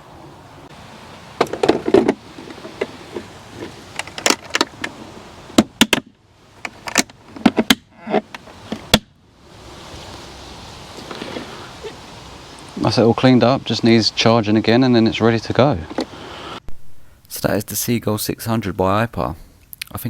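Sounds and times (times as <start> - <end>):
plastic parts clicking and knocking: 1.4 - 5.0, 5.6 - 9.1.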